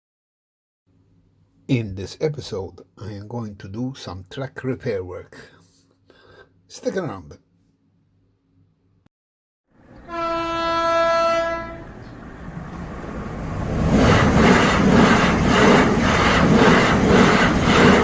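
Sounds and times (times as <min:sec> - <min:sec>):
train rolling by: 0:09.8 - 0:18.0
train horn: 0:09.9 - 0:12.0.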